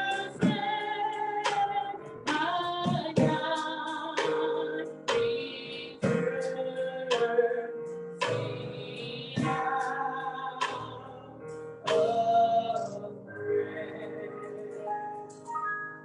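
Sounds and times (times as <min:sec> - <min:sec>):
singing: 0:00.0 - 0:14.9
slow church music chords: 0:00.0 - 0:16.0.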